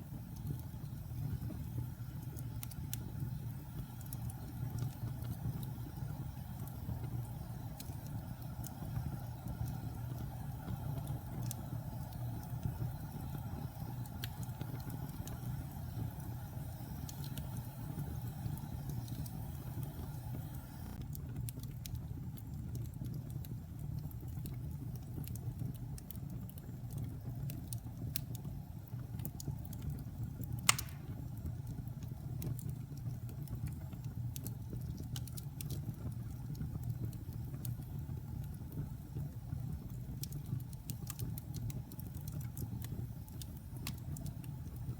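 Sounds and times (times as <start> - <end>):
fire crackling: 0.0 - 44.9
low fire rumble: 0.0 - 44.9
sharp pop of fire: 30.6 - 31.4.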